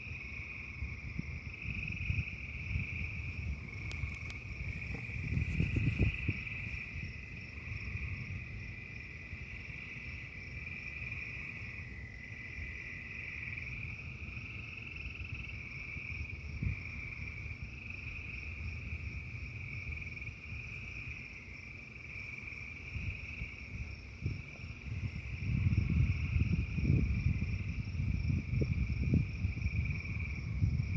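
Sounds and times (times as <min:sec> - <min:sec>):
frog chorus trilling: 0:01.6 - 0:18.6.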